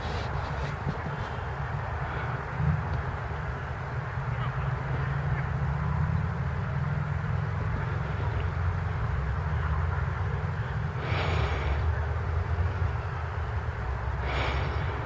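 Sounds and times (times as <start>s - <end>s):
brief rustling: 0.0s - 1.4s.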